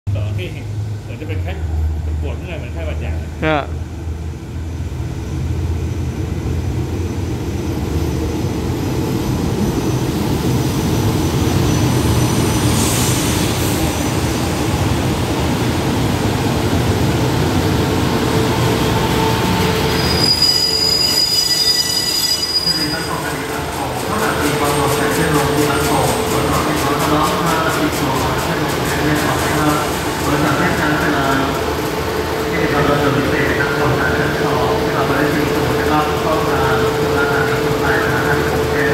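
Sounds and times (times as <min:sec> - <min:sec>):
train wheels rumbling: 0:00.1 - 0:38.9
train brakes squealing: 0:07.9 - 0:14.6, 0:19.0 - 0:27.7.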